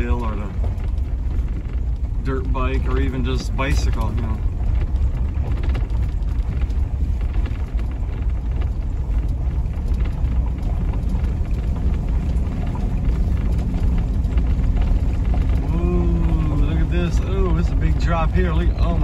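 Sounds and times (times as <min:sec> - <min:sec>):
tyres on gravel road: 0:00.0 - 0:19.0
van engine rumble: 0:00.0 - 0:19.0.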